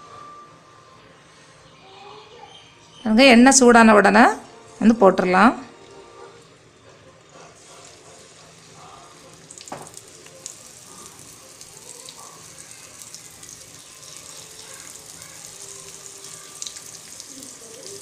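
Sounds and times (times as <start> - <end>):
eggplant slices sizzling in oil: 7.6 - 18.0.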